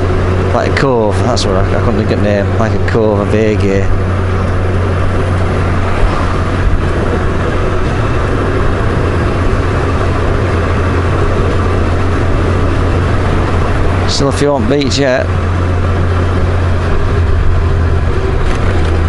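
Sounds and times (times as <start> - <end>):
motorcycle engine cruising: 0.0 - 19.0
wind and road noise: 0.0 - 19.0.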